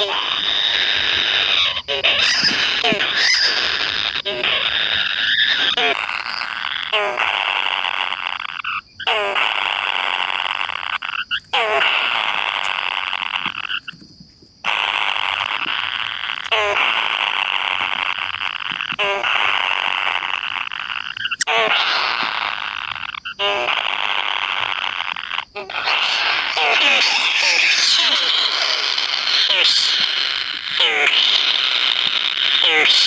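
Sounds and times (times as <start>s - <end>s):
kingfisher raspy begging calls: 0.0s - 6.6s, 25.6s - 33.0s
falling bird notes: 25.7s - 30.1s.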